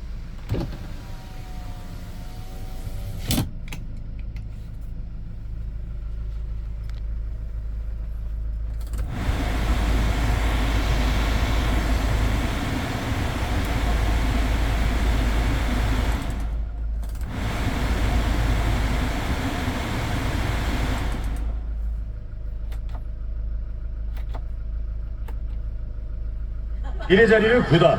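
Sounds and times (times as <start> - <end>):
power window motor whine: 0.0 - 3.7, 8.8 - 22.0
truck engine idling: 0.0 - 27.9
ventilation fan air rush: 8.9 - 22.1.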